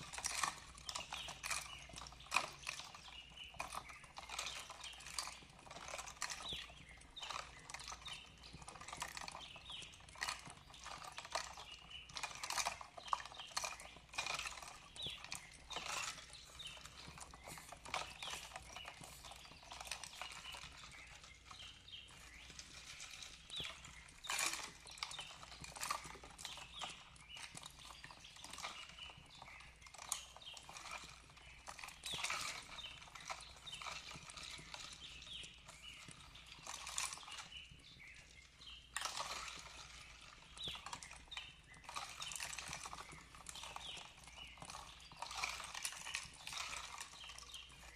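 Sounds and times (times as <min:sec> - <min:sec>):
fireplace crackling and popping: 0:00.0 - 0:47.9.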